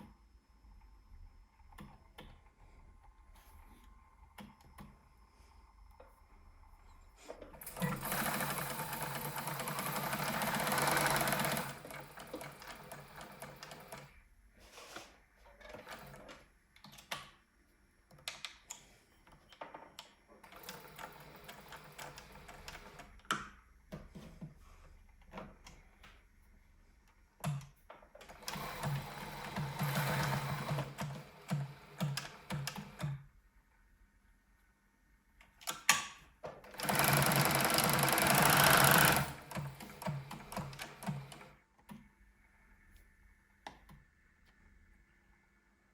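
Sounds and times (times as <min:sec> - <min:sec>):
sewing machine running: 0:07.5 - 0:14.2, 0:20.5 - 0:23.1, 0:28.3 - 0:33.2, 0:36.7 - 0:41.6.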